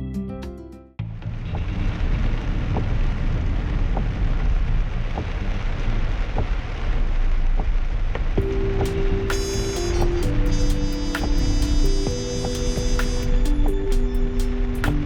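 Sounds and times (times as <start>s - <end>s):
background music: 8.4s - 15.0s.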